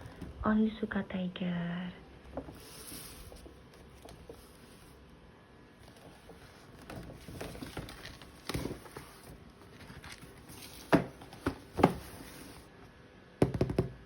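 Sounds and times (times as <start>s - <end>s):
cardboard box rustling and scraping: 2.4s - 5.0s, 5.8s - 12.7s
sharp knocks on cardboard box: 10.9s - 12.1s.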